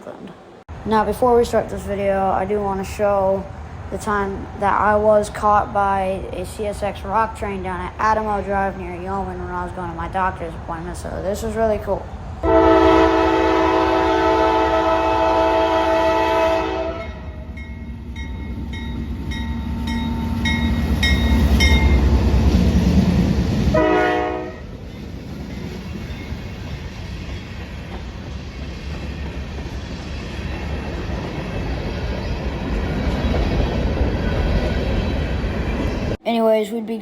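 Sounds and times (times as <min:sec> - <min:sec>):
train cars rumbling past: 0:00.7 - 0:36.2
locomotive horn: 0:12.4 - 0:17.3, 0:23.7 - 0:24.7
crossing bell pinging: 0:17.0 - 0:22.2.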